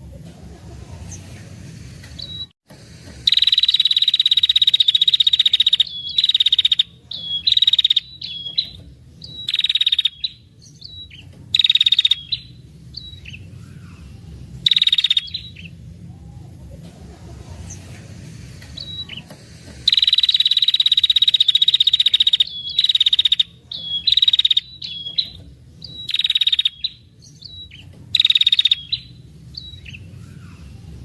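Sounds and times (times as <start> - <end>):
bird ticking trill: 3.1 - 13.5, 14.6 - 15.8, 18.8 - 30.1.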